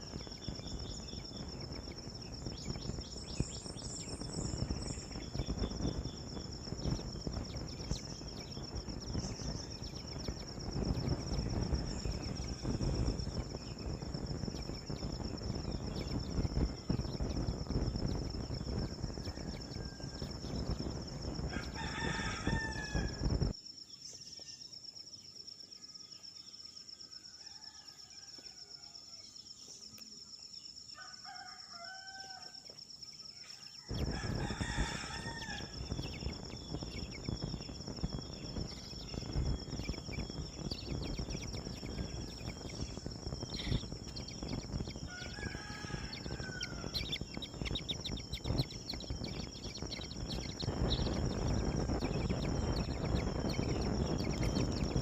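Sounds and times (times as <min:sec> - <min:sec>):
rumbling wind: 0:00.0 - 0:23.6, 0:33.9 - 0:55.0
faint bird chirps: 0:00.0 - 0:55.0
high insect drone: 0:00.0 - 0:55.0
rooster crowing: 0:18.8 - 0:20.8, 0:21.5 - 0:23.5, 0:27.3 - 0:29.2, 0:31.0 - 0:32.6, 0:33.4 - 0:36.2, 0:41.8 - 0:47.8.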